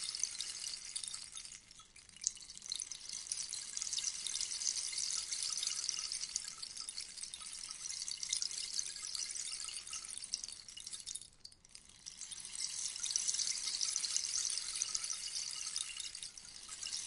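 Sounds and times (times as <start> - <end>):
rainstick pellets pattering: 0.0 - 17.0.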